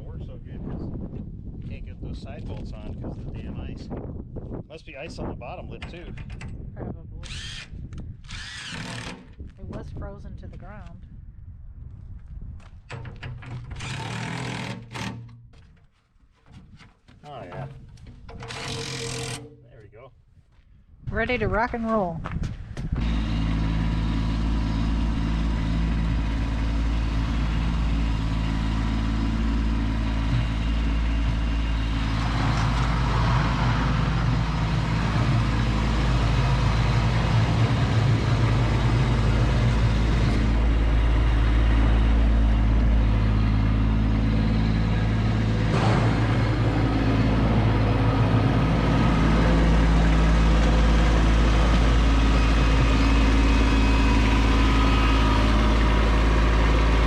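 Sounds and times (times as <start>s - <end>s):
tractor diesel engine running: 12.9s - 15.6s, 16.5s - 19.8s, 21.1s - 57.0s.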